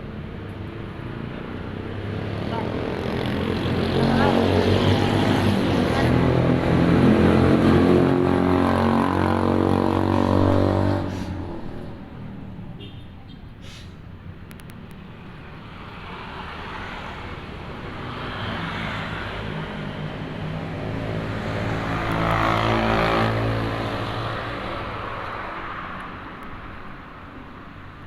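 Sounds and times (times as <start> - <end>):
motor vehicle passing: 1.8 - 12.4, 16.3 - 25.8.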